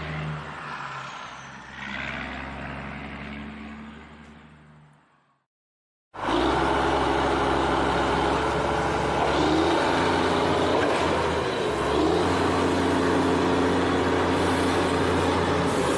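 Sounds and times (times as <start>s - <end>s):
vehicle engine running: 6.2s - 15.9s.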